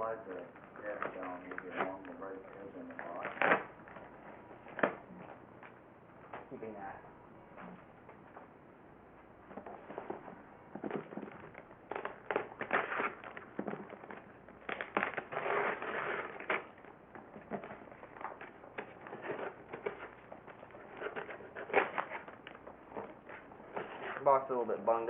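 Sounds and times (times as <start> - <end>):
packing material crinkling: 0.3 - 4.8, 11.0 - 24.3.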